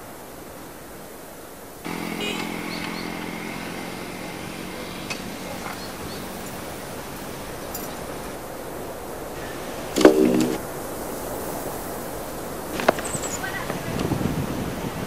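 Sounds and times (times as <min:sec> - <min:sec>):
motorcycle engine idling: 0:01.9 - 0:08.1.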